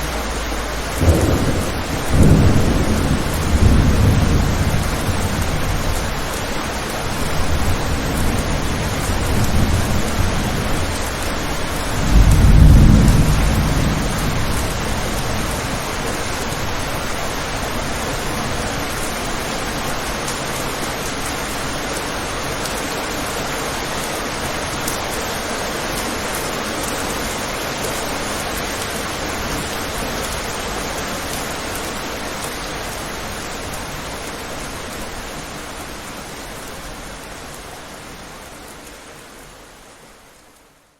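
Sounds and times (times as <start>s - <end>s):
steady rain falling: 0.0s - 40.9s
low roll of thunder: 0.8s - 6.4s, 7.1s - 18.9s.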